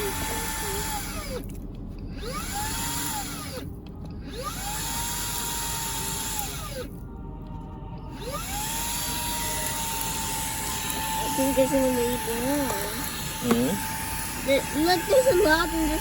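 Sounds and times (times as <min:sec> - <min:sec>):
vacuum cleaner motor whining: 0:00.0 - 0:01.5, 0:04.3 - 0:06.9, 0:08.1 - 0:16.0.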